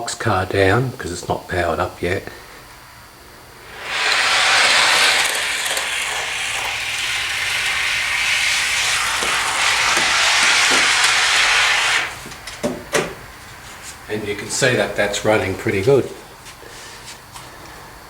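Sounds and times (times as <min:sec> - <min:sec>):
model train wheels hissing on rails: 0:03.6 - 0:12.7.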